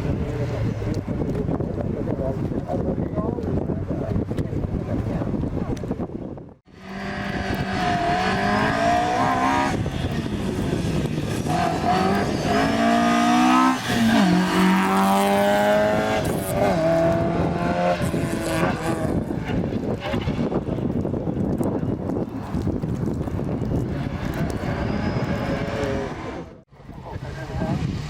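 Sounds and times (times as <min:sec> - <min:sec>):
rally car engine at full throttle: 0:06.7 - 0:28.0.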